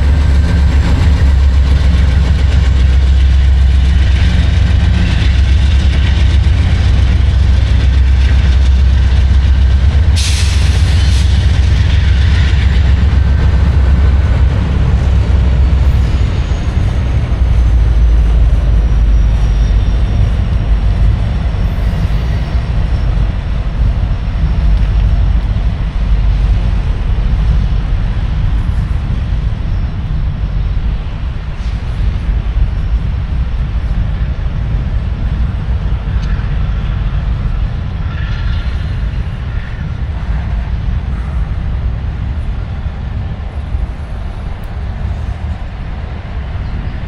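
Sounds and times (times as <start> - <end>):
train rumbling on tracks: 0.0 - 47.0
hiss burst: 10.1 - 11.8.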